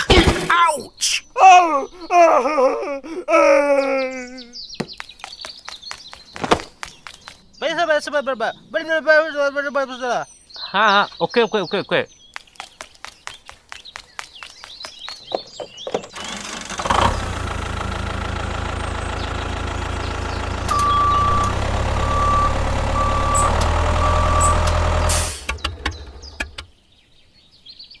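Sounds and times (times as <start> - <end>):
quick clicks: 12.3 - 15.2
vehicle engine running: 16.1 - 26.7
short beeps: 20.7 - 24.8.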